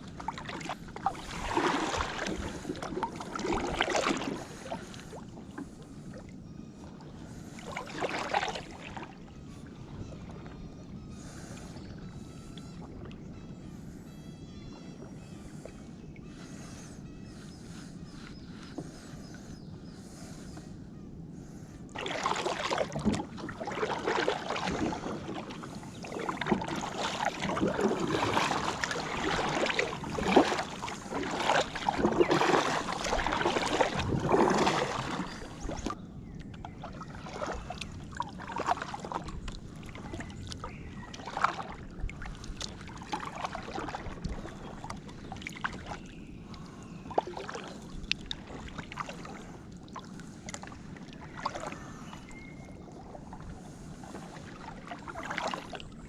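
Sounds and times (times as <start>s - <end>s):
paddle strokes splashing: 0.0s - 6.2s, 6.8s - 13.1s, 21.9s - 36.0s, 36.6s - 56.0s
water washing along hull: 0.0s - 20.8s, 21.4s - 56.0s.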